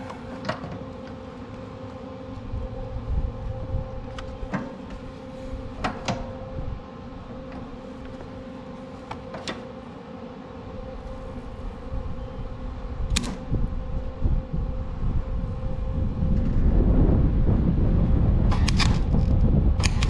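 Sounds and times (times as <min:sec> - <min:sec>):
low rumbling noise: 0:00.0 - 0:09.1, 0:09.7 - 0:20.0
machine humming: 0:00.0 - 0:20.0
sharp clicks: 0:18.5 - 0:20.0.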